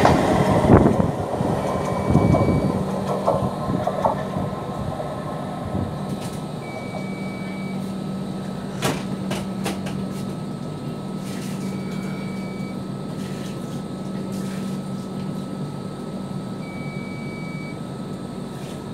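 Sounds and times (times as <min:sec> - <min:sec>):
wheels rumbling on rails: 0:00.0 - 0:10.4
clacks over rail joints: 0:01.7 - 0:04.5.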